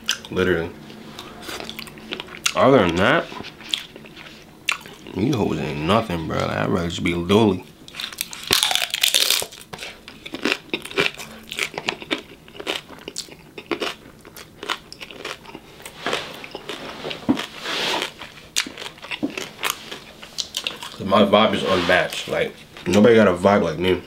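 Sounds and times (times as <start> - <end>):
chewing with wet mouth clicks: 0.0 - 0.3, 1.5 - 5.2, 7.9 - 16.8, 17.4 - 21.0
biting into taco: 7.9 - 21.0.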